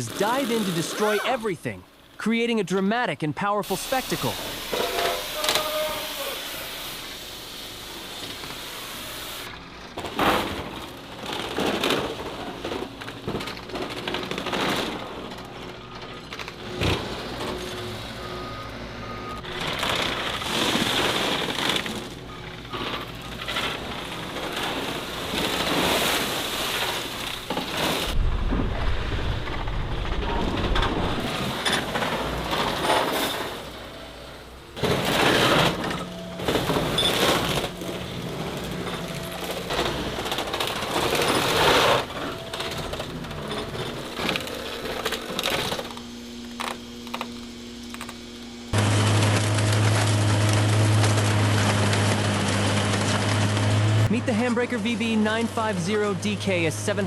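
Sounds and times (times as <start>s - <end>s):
engines running: 6.7s - 57.0s
metal clanking and crashing: 9.9s - 45.9s
deep rumble: 27.3s - 32.7s.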